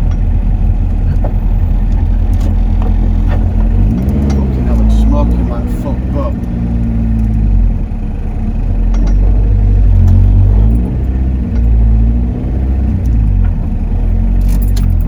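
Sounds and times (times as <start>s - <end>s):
car engine revving under load: 0.0s - 15.0s
sharp rattling clatter: 8.6s - 12.2s.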